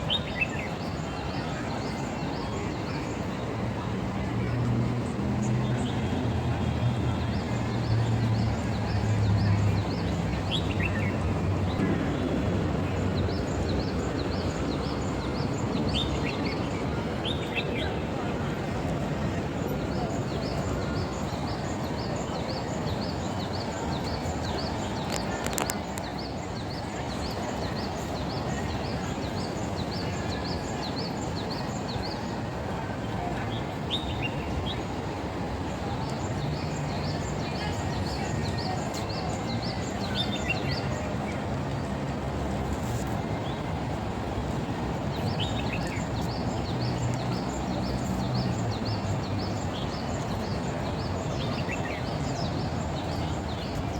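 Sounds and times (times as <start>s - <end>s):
background rush: 0.0s - 53.9s.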